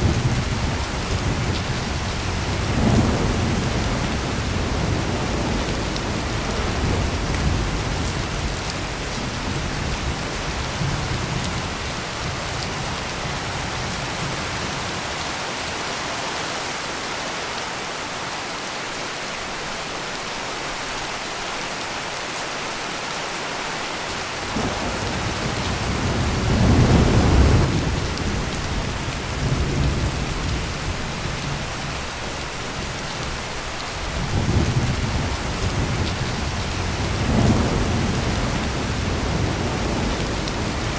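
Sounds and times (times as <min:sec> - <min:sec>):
thunder rumbling: 0:00.0 - 0:14.6, 0:24.4 - 0:40.9
heavy rain pouring: 0:00.0 - 0:40.9.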